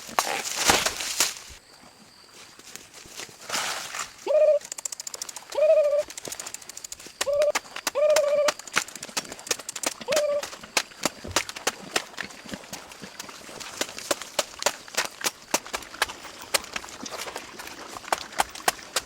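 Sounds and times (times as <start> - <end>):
bird cooing: 4.2 - 4.8, 5.5 - 6.1, 7.2 - 8.6, 10.0 - 10.5
rapid clicks and taps: 4.6 - 12.0.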